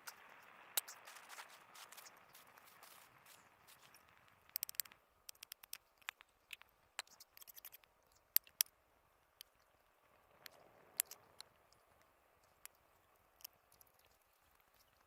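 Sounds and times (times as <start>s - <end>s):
faint hiss: 0.0s - 15.0s
sharp clicks and ticks: 0.0s - 15.0s.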